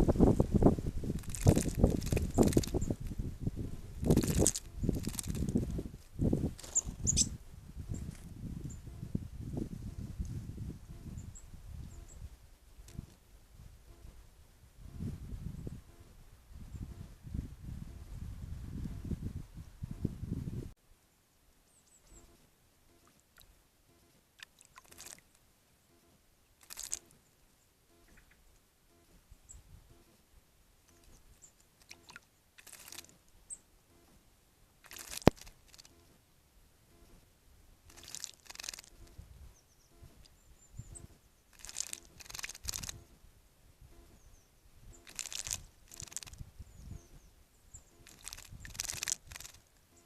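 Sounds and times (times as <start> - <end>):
birds splashing in water: 1.0 - 3.2, 4.0 - 5.7, 24.4 - 25.3, 26.6 - 27.2, 31.8 - 33.2, 34.8 - 36.0, 37.9 - 39.1, 41.5 - 43.1, 44.9 - 46.4, 47.9 - 49.6
faint high bird calls: 6.6 - 9.1, 21.7 - 23.2, 26.8 - 30.2, 38.6 - 42.3
faint thin bird chirps: 6.6 - 9.1, 10.9 - 13.1, 21.7 - 25.3, 25.9 - 30.2, 37.9 - 43.2, 43.8 - 50.0.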